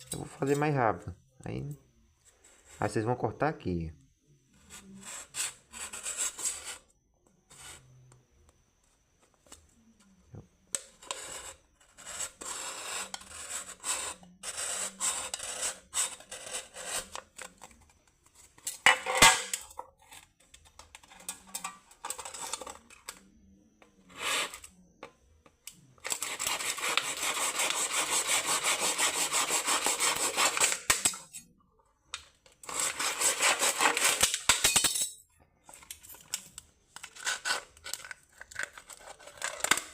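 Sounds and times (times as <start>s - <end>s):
beer can scraping: 20.9s - 22.9s, 24.1s - 24.7s, 32.6s - 34.4s
rapid rasping on can: 32.6s - 34.3s.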